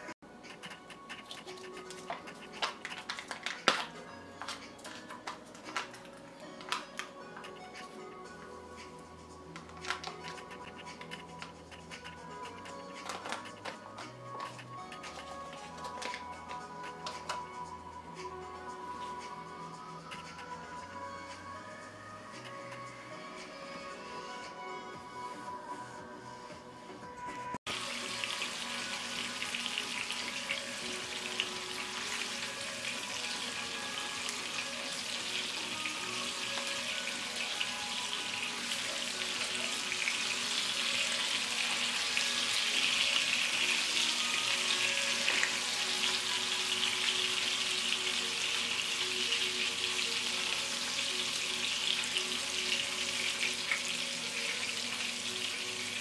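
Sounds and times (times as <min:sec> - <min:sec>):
fish sizzling in hot oil: 0:27.7 - 0:56.0.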